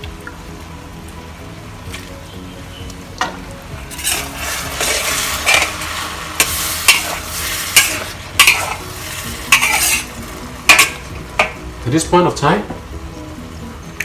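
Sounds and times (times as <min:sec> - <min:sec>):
food sizzling in a wok: 0:00.0 - 0:14.0
spatula scraping a wok: 0:03.8 - 0:11.1.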